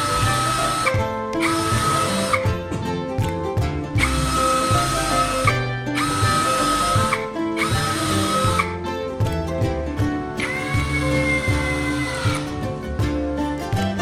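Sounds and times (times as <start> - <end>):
power drill running: 0.0 - 2.5, 4.0 - 8.7, 10.4 - 12.4
background music: 0.0 - 14.0.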